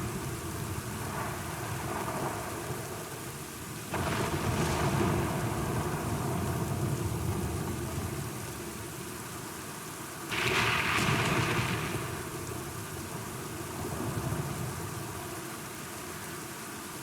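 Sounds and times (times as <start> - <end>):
heavy rain: 0.0 - 17.0
rolling thunder: 3.9 - 7.8, 10.3 - 14.8.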